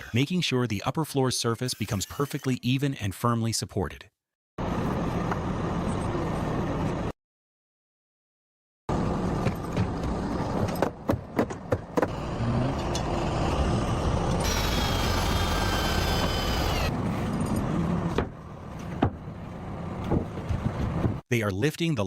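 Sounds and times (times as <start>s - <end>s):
steady motor noise: 12.1s - 17.0s.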